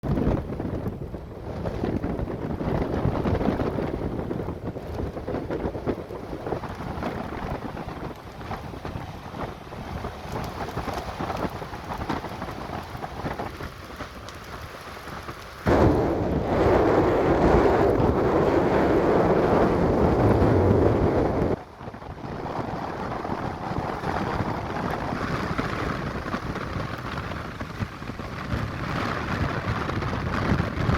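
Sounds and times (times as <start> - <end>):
surf: 0.0 - 30.9
wind: 0.0 - 30.9
wind buffeting microphone: 0.0 - 30.9.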